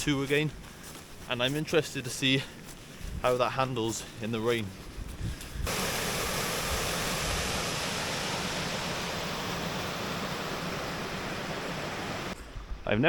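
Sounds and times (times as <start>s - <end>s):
stream water rushing: 5.7s - 12.4s.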